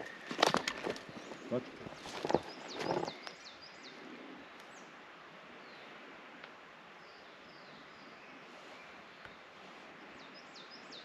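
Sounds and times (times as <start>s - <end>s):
scuffs and knocks: 0.0s - 3.2s
songbird chirps: 0.0s - 11.0s.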